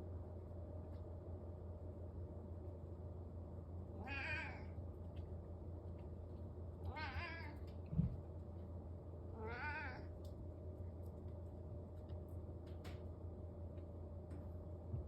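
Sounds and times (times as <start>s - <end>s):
steady low hum: 0.0s - 15.0s
cat meowing: 4.0s - 4.8s, 6.8s - 7.7s, 9.4s - 10.1s.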